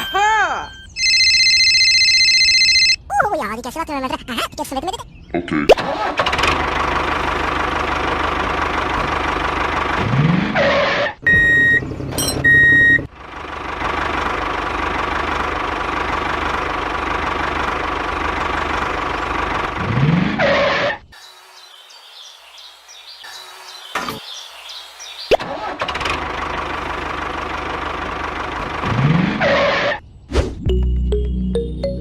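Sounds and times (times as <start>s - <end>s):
high electronic beeps: 0.0s - 3.0s.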